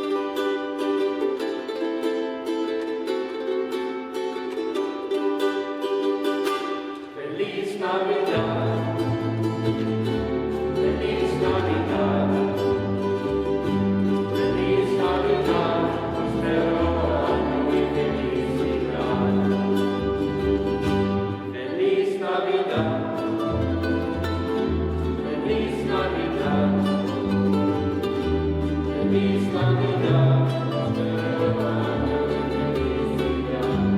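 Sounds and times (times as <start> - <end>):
plucked-string accompaniment: 0.0 - 33.9
voices singing: 7.0 - 33.9.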